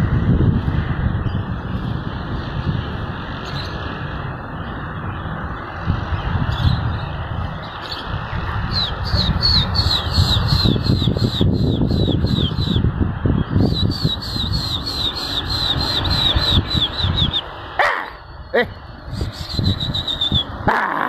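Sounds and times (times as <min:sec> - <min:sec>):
wind rumbling on microphone: 0:00.0 - 0:21.0
bird chirping: 0:08.7 - 0:12.8, 0:13.4 - 0:17.5, 0:18.2 - 0:20.6.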